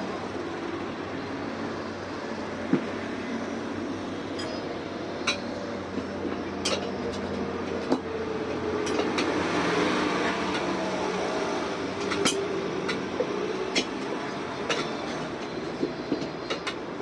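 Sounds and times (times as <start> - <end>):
metal tools clinking: 4.4 - 4.7.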